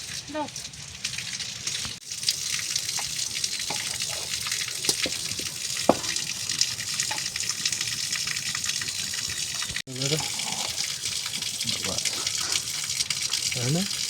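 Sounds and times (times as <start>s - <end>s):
small splashes and clicks: 0.0s - 7.9s
water rushing steadily: 0.0s - 14.0s.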